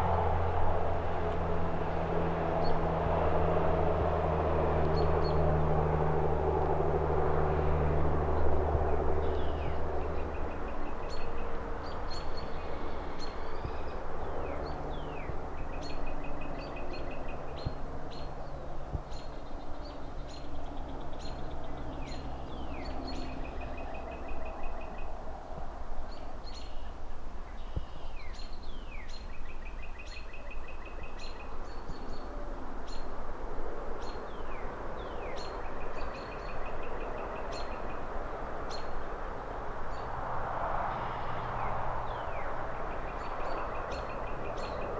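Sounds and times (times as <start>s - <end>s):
distant city traffic rumble: 0.0s - 44.9s
small birds singing and chirping: 9.0s - 25.2s, 26.0s - 33.2s, 33.9s - 39.2s, 41.4s - 44.9s.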